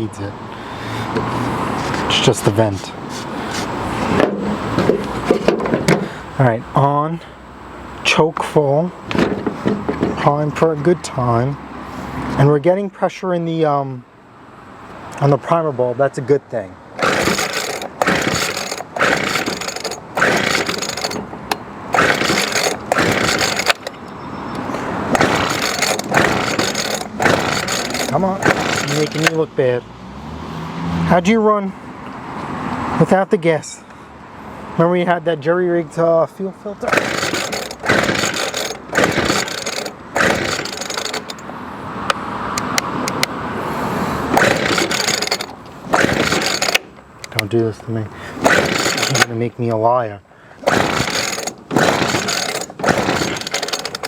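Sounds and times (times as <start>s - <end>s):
engine turning over: 9.0s - 10.3s, 17.0s - 29.5s, 36.8s - 41.5s, 44.2s - 47.4s, 48.3s - 49.4s, 50.6s - 54.0s
trimmer recoil starter pulls: 17.0s - 29.5s, 36.8s - 41.5s, 44.3s - 47.5s, 48.4s - 49.4s, 50.6s - 54.0s.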